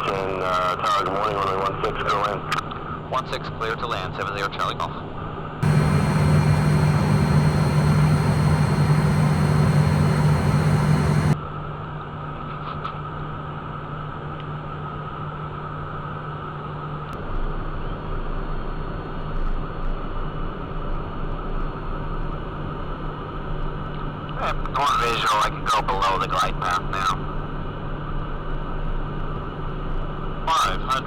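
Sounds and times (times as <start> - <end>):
jet cockpit engine and airflow noise: 5.6 - 11.4.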